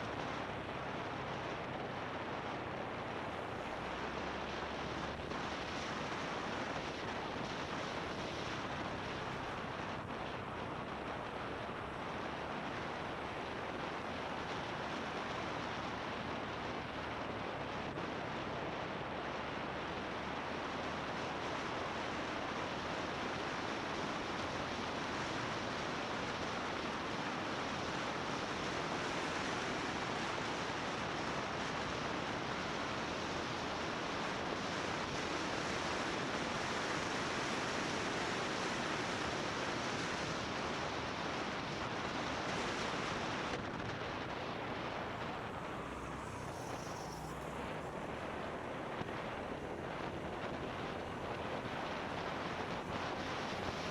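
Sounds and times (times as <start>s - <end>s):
road noise: 0.0s - 53.9s
wind rushing over microphone: 0.0s - 53.9s.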